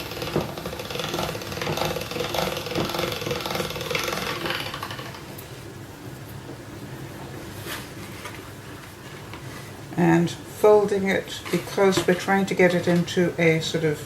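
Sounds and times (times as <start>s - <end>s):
pasta maker rollers clattering: 0.0s - 5.3s.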